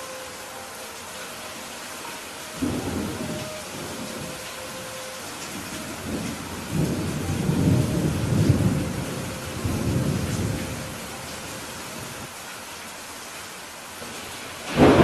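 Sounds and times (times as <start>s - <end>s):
steady rain falling: 0.0s - 15.0s
thunder rumbling: 2.6s - 12.3s, 14.6s - 15.0s.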